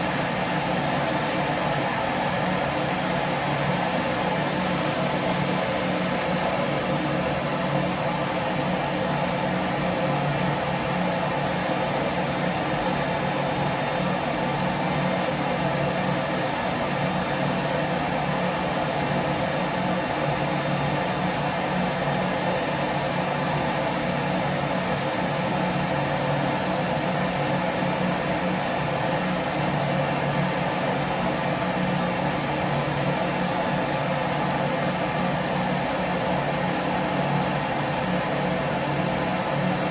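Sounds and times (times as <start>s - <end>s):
vacuum cleaner running: 0.0s - 7.8s.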